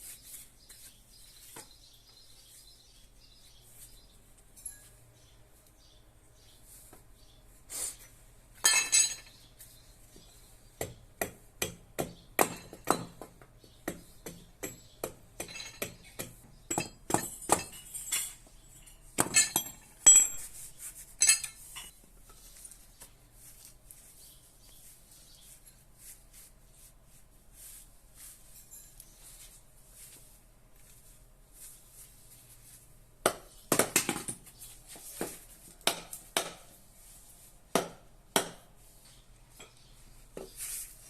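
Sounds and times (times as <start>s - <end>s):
metallic clinks and taps: 4.4s - 5.0s.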